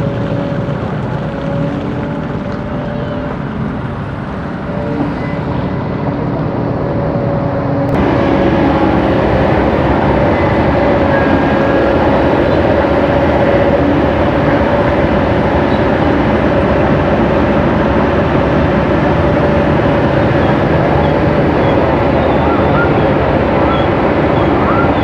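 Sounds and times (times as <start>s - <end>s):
excavator diesel engine drone: 0.0s - 25.0s.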